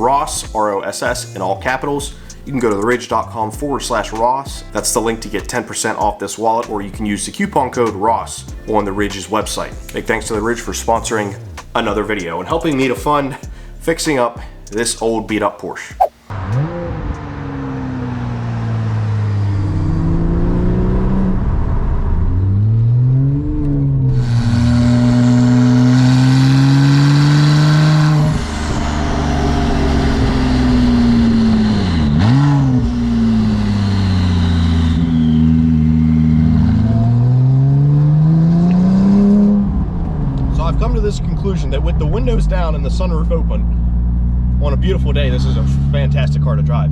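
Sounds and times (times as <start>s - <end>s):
car engine accelerating through gears: 16.3s - 46.9s.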